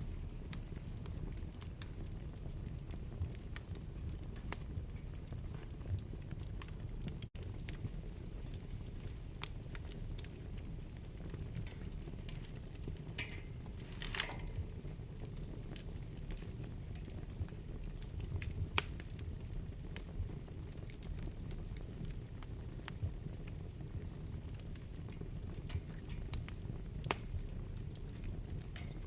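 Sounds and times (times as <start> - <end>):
wood fire burning: 0.0 - 29.0.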